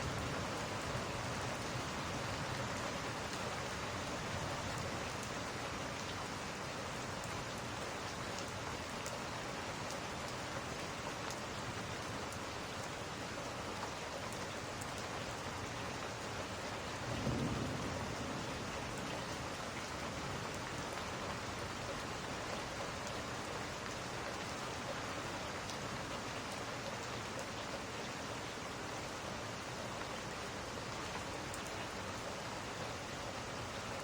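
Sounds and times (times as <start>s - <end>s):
steady rain falling: 0.0s - 34.0s
low rumble of thunder: 17.0s - 20.9s.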